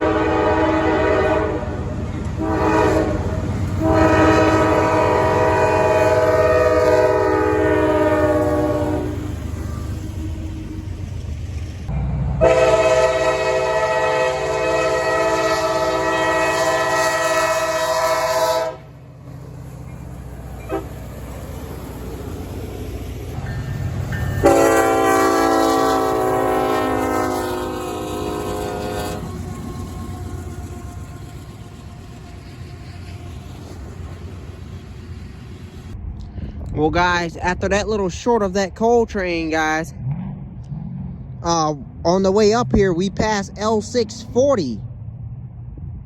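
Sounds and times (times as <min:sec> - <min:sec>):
train air horn blasts: 0:00.0 - 0:09.8, 0:12.4 - 0:19.0, 0:20.6 - 0:21.0, 0:24.4 - 0:31.6
low rumble of passing train: 0:00.0 - 0:46.0.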